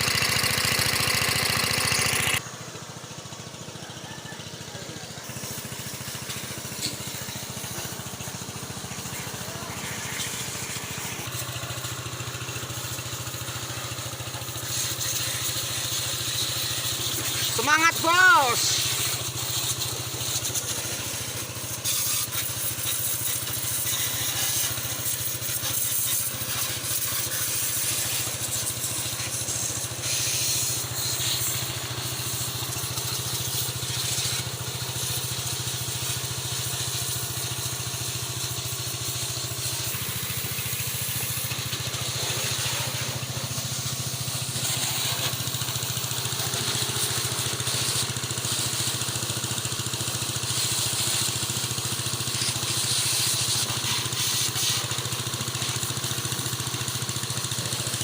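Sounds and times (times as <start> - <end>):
water spray hissing: 0.0 - 2.4, 4.8 - 58.0
pressure washer machine hum: 0.0 - 58.0.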